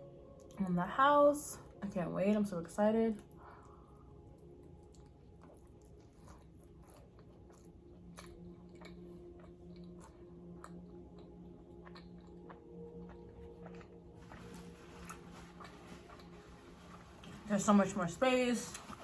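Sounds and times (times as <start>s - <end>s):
chewing nacho chips: 3.2s - 17.5s.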